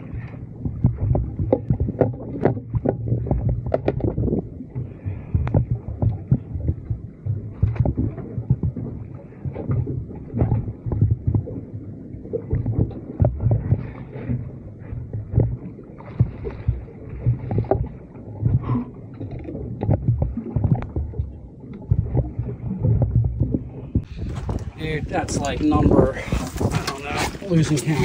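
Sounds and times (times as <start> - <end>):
water sloshing against boat hull: 0.0 - 28.0.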